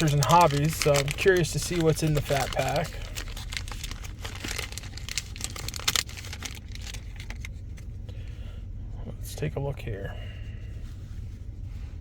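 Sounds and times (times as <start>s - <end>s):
wrapper crinkling as torn open: 0.0s - 7.5s.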